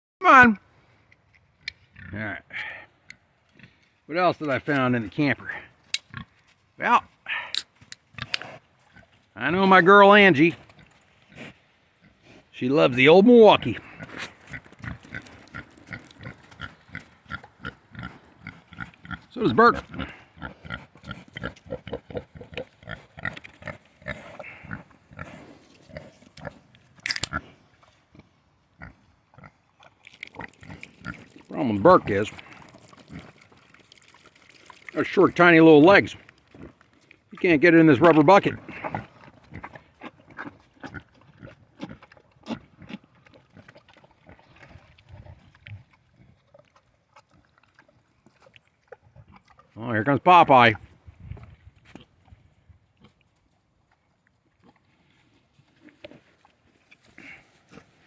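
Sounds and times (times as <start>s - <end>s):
pig eating and slurping: 0.8s - 9.3s, 10.2s - 12.5s, 13.6s - 49.9s, 50.8s - 58.0s
pig grunts: 13.6s - 26.2s, 38.0s - 43.0s, 57.1s - 57.5s.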